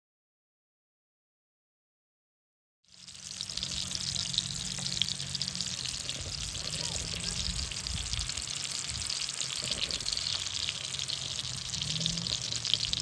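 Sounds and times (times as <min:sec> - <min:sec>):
water trickling: 0:03.0 - 0:13.0.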